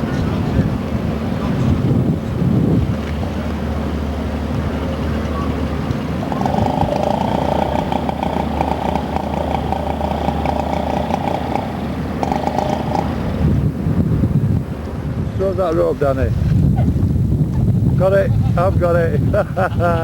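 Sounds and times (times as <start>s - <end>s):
higher engine note: 0.0s - 15.1s
boat engine humming: 0.0s - 20.0s.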